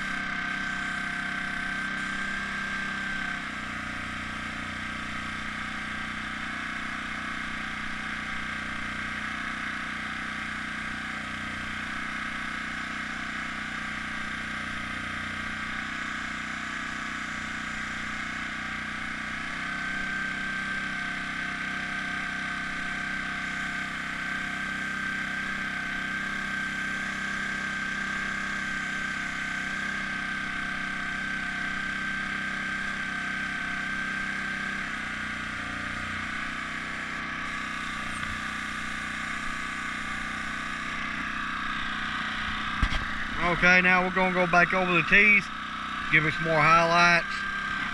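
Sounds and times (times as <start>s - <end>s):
air compressor humming: 0.0s - 47.9s.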